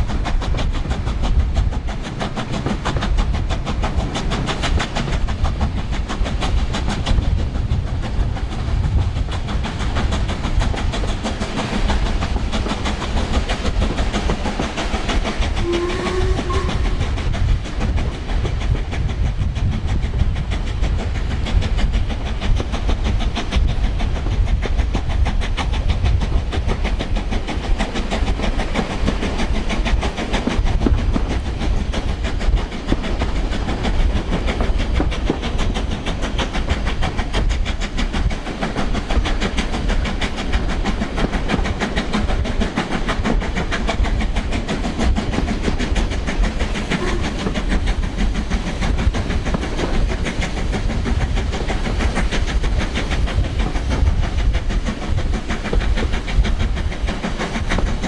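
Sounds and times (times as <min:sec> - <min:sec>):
steam locomotive exhaust beat: 0:00.0 - 0:58.0
train wheels clattering on rails: 0:00.0 - 0:58.0.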